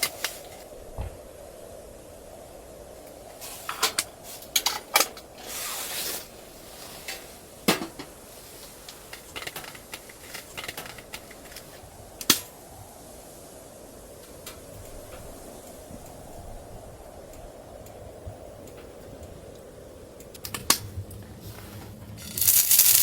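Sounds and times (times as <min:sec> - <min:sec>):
steady low hum: 0:06.2 - 0:23.0
short hiss: 0:22.2 - 0:23.0.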